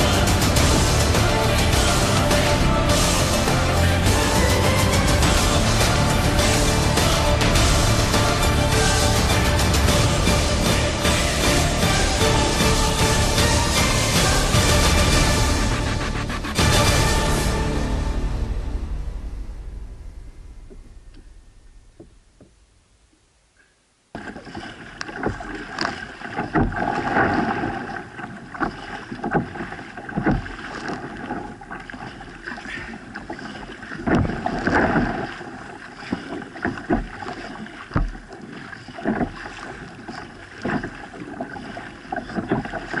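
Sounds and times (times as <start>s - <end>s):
rushing water: 0.0s - 18.9s, 24.1s - 43.0s
music: 0.0s - 21.3s
water splashing against kayak hull: 24.1s - 43.0s.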